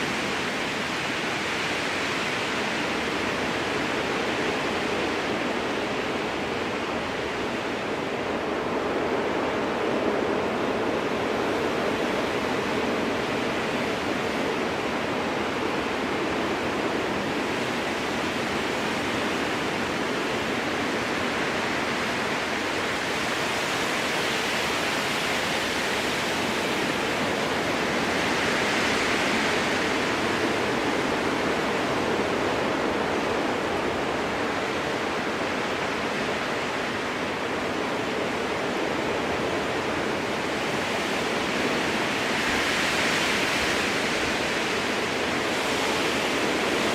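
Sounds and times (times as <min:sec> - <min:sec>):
strong wind through forest: 0:00.0 - 0:46.9.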